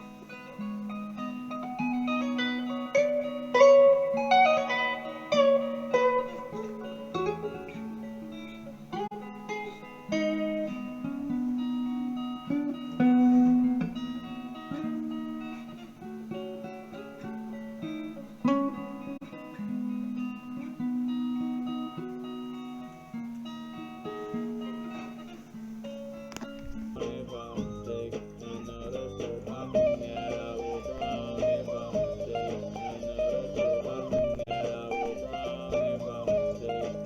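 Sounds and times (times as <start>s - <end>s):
plucked guitar notes: 0.0s - 37.0s.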